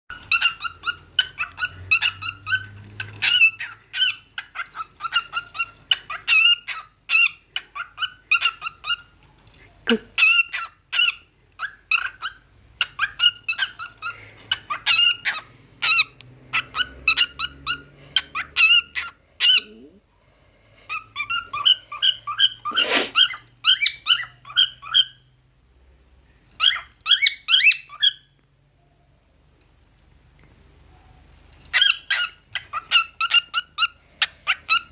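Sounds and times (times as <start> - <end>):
bird squeaky calls: 0.1 - 9.2, 9.9 - 20.0, 20.9 - 25.4, 26.5 - 28.4, 31.6 - 34.9
brief hissing noise: 22.7 - 23.2.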